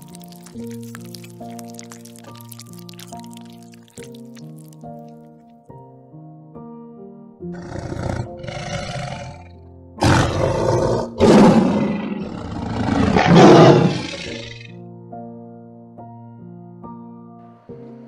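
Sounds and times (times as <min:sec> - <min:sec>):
soft piano music: 0:00.0 - 0:07.6, 0:14.7 - 0:18.0.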